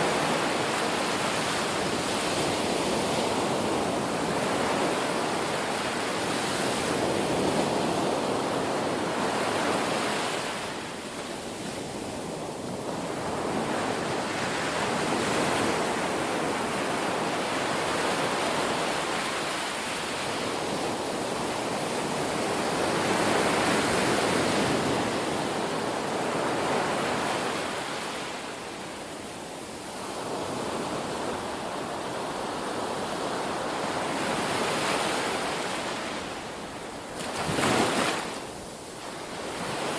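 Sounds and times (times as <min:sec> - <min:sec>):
ocean waves breaking: 0:30.1 - 0:39.9.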